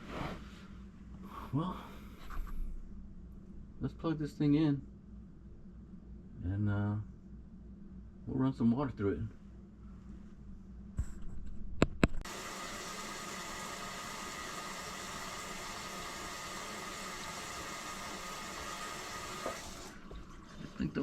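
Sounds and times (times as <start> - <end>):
garbage disposal running: 12.2 - 21.0
water flowing: 12.2 - 21.0.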